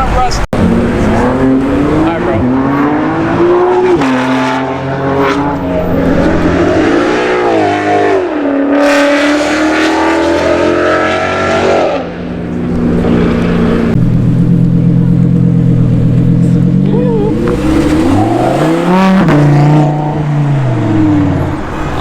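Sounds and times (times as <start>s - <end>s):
sports car engine revving: 0.6s - 22.0s
engine running steadily: 12.0s - 18.3s.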